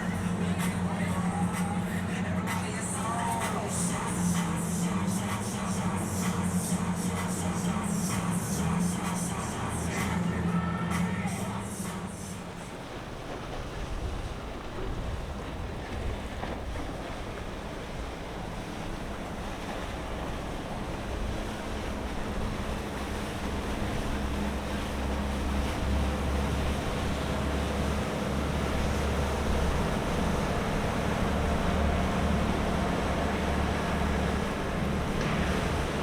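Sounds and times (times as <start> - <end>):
boat engine droning: 0.0 - 36.0
water washing: 0.0 - 36.0
wind on microphone: 12.5 - 36.0.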